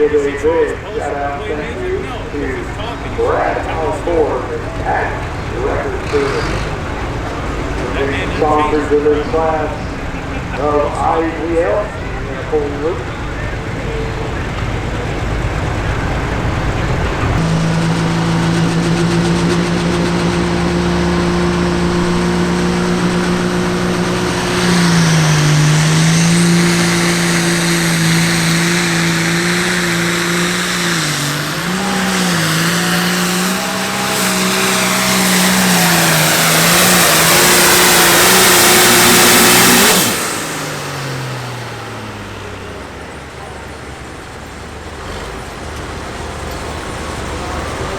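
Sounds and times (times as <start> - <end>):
tractor diesel engine at full throttle: 0.0 - 47.9.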